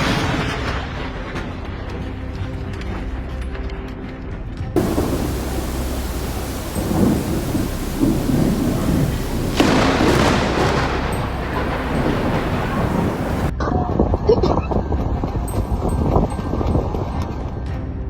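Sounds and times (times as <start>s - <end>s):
heavy rain hiss: 4.8s - 13.5s
rumbling thunder: 4.8s - 13.5s
sharp thunder crack: 4.8s - 13.5s.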